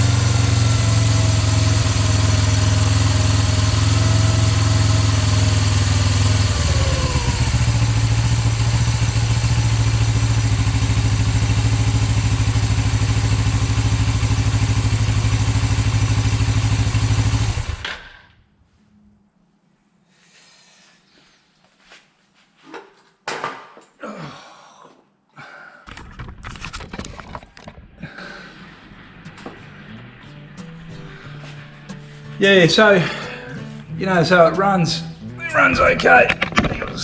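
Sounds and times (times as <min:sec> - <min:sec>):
motorcycle engine idling: 0:00.0 - 0:18.2, 0:28.3 - 0:34.4.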